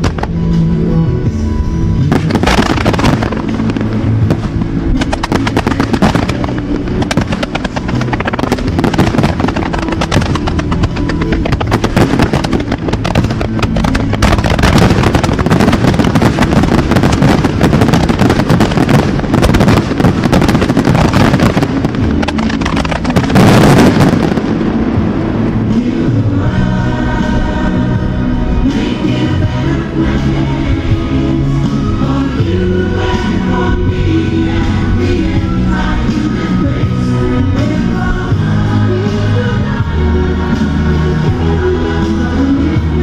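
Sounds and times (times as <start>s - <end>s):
fireworks bursting and crackling: 2.1s - 26.7s.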